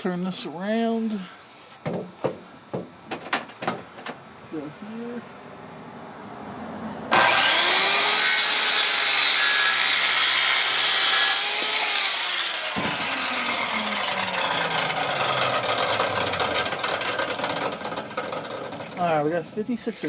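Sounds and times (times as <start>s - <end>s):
saw blade winding down: 7.1s - 18.8s
power saw cutting wood: 7.1s - 19.2s.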